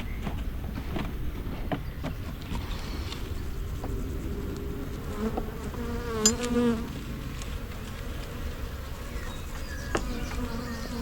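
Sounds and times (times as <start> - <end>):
honey bees buzzing: 3.2 - 11.0
bee flying past: 4.6 - 9.1.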